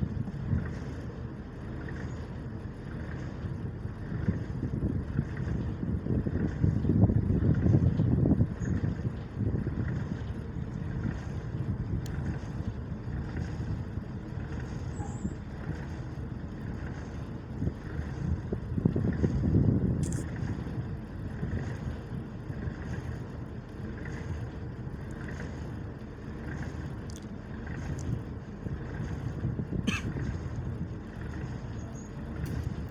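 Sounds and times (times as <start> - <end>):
boat engine rumble: 0.0 - 32.9
wind noise: 3.0 - 14.8, 16.6 - 23.1, 27.6 - 32.9.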